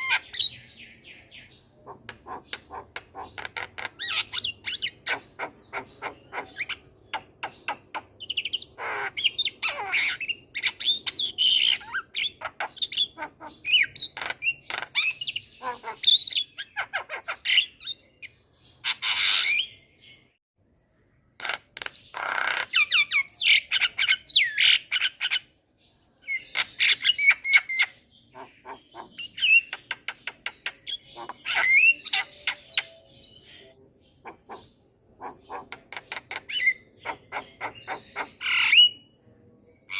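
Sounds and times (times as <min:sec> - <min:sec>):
bird harsh squawks: 0:01.8 - 0:17.7, 0:26.5 - 0:29.8, 0:34.2 - 0:39.0.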